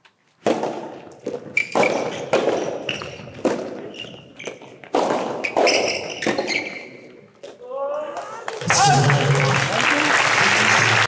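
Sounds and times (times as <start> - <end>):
ball bouncing: 0.4 - 6.6
rackets hitting ball: 0.4 - 7.6.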